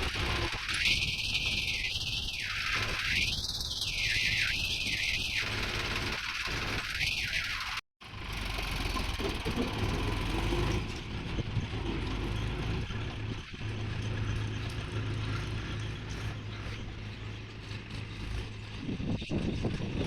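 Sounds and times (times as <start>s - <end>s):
heavy diesel engine droning: 8.0s - 20.0s.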